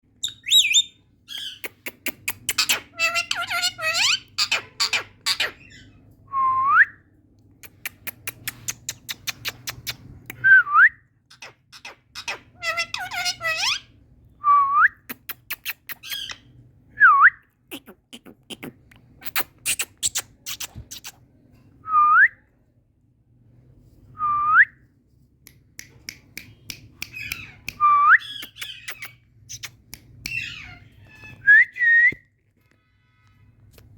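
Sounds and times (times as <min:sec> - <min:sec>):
parakeet clicking and chattering: 0:01.3 - 0:05.5, 0:07.6 - 0:10.2.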